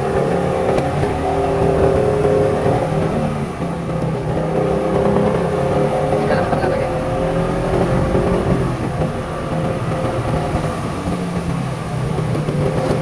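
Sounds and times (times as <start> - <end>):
road and wind noise: 0.0 - 13.0
vehicle engine running: 0.0 - 13.0.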